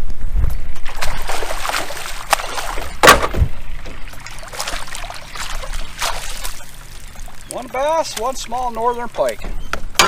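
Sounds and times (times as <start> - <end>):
water sloshing against metal canoe: 0.8 - 10.0
splash or knock on canoe: 0.9 - 3.9.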